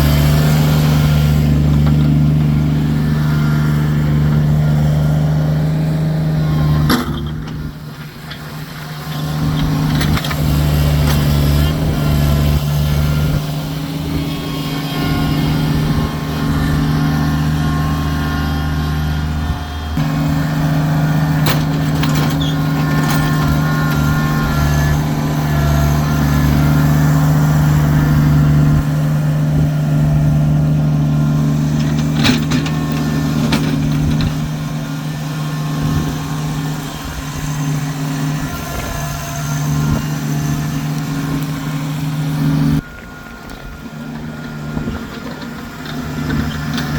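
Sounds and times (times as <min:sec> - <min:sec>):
tractor diesel engine running: 0:00.0 - 0:46.9
sharp metal clanks and knocks: 0:21.3 - 0:24.1.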